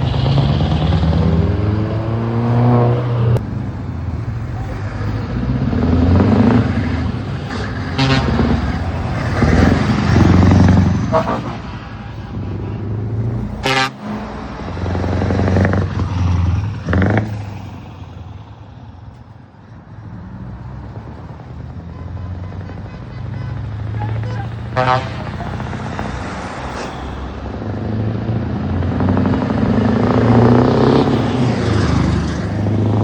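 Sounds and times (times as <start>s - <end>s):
diesel trucks accelerating past: 0.0s - 33.0s
truck horn toots: 7.4s - 8.8s, 10.3s - 13.0s, 13.6s - 14.2s, 21.7s - 25.7s.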